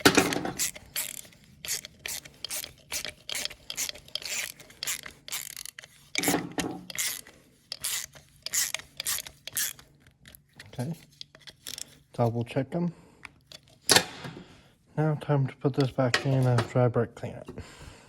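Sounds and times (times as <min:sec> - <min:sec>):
socket ratchet clicking: 0:00.0 - 0:11.9.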